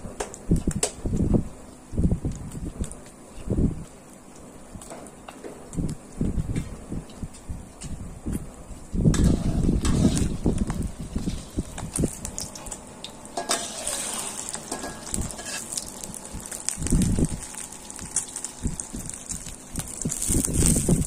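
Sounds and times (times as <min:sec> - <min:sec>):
metal spatula scraping a wok: 0:09.1 - 0:10.5, 0:13.4 - 0:16.2
egg sizzling in hot oil: 0:09.1 - 0:21.0.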